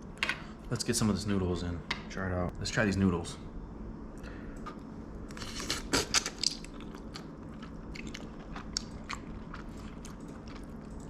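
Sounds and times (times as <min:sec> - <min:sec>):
person chewing: 0:05.3 - 0:11.0.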